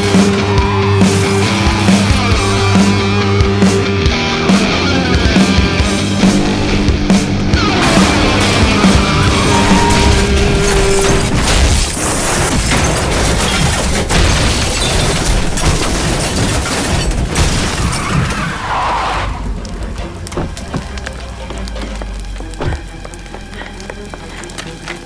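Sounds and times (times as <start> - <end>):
film score music: 0.0 - 14.2, 16.5 - 25.0
car crash booms and impacts: 7.6 - 18.7.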